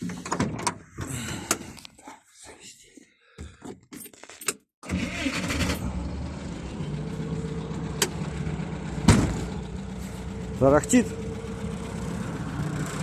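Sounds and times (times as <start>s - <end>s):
car engine rattling drone: 5.0s - 13.0s
loud thump: 9.0s - 9.5s.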